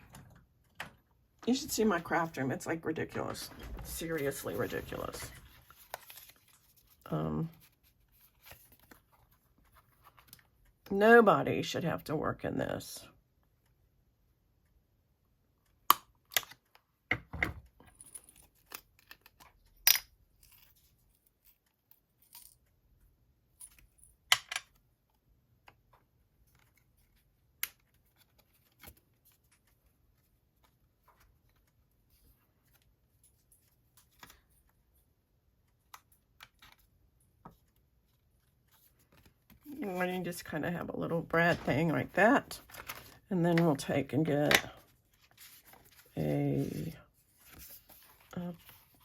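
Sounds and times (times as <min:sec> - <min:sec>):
paper rustling: 0:03.4 - 0:10.5, 0:41.3 - 0:43.7, 0:44.8 - 0:49.0.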